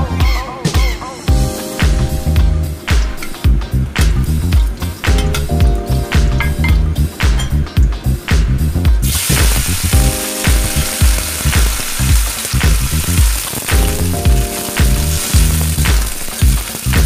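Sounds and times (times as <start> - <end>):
background music with steady beat: 0.0 - 17.0
celery sizzling in a wok: 9.0 - 17.0.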